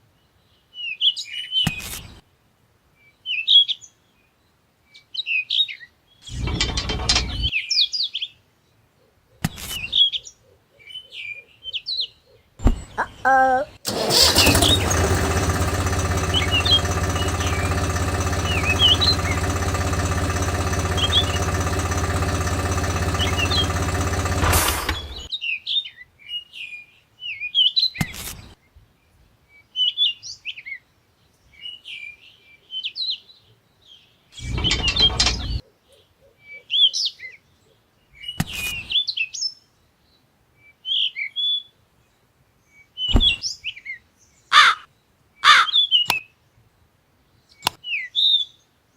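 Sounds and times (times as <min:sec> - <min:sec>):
birds chirping: 0:13.9 - 0:25.3, 0:34.4 - 0:36.6
small motor running: 0:13.9 - 0:25.3, 0:34.4 - 0:35.6.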